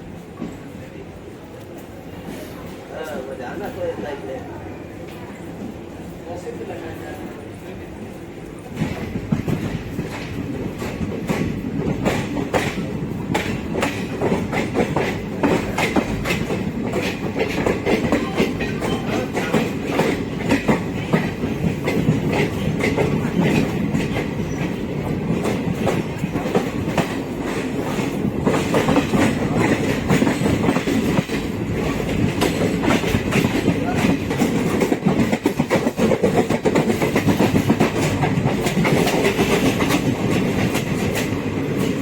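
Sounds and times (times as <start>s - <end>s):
train wheels on rails: 0.0s - 42.0s
wheels clicking over rail joints: 8.7s - 42.0s.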